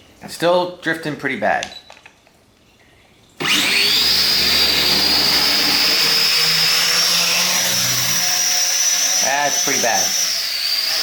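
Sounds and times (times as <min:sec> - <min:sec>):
drone motors high whine: 0:03.4 - 0:08.5.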